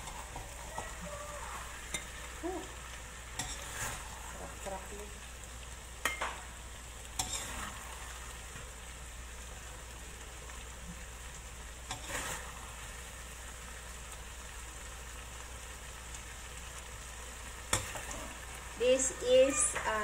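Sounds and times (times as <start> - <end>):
spatula scraping a pan: 0.0 - 2.4, 3.2 - 4.8, 7.2 - 8.3, 11.8 - 12.8
food sizzling in a wok: 0.0 - 20.0.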